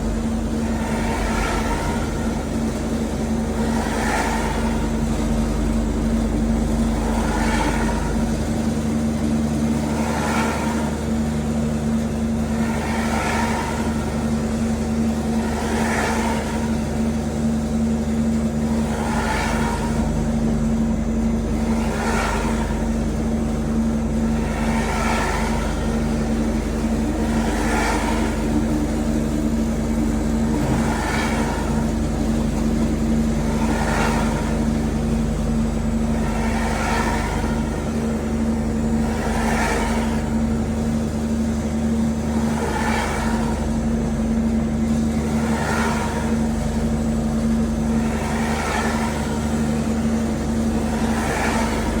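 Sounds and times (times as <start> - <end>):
motor hum: 0.0 - 52.0
machine cutting foam: 21.2 - 44.0.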